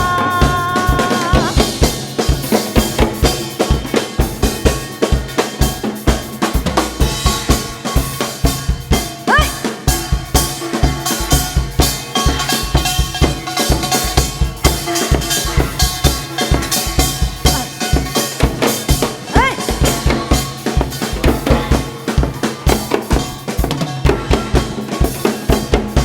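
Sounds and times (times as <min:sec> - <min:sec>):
ensemble drumming: 0:00.0 - 0:02.1.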